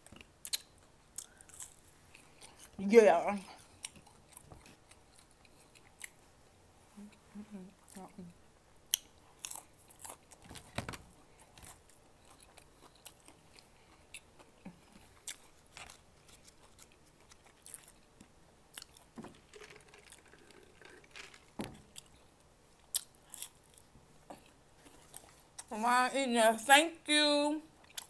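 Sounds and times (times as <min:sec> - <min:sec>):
mouth clicks and smacks: 0:00.1 - 0:01.5
chewing chicken nuggets: 0:08.9 - 0:22.2.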